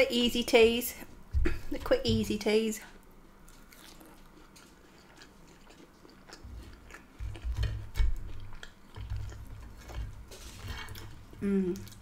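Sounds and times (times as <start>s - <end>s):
chewing chips: 3.4s - 12.0s.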